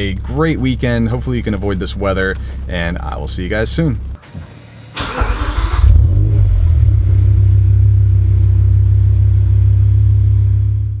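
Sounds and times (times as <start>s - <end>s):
car engine starting and idling: 4.0s - 11.0s.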